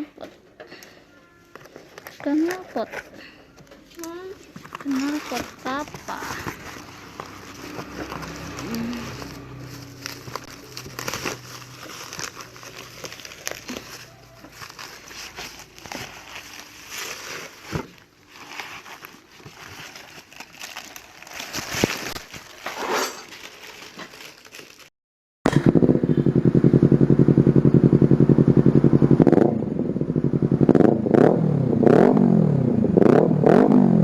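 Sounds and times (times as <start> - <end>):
crinkling and rustling: 0.0 - 24.9.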